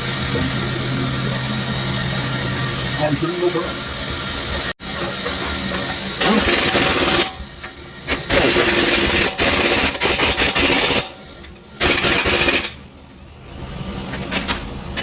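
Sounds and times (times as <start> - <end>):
power tool hissing: 4.9 - 11.2, 11.8 - 12.8.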